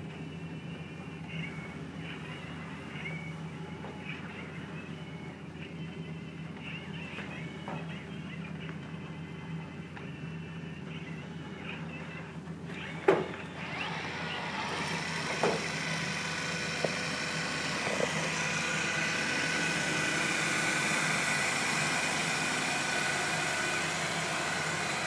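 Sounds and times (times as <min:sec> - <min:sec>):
robot vacuum whirring: 0:12.7 - 0:25.0.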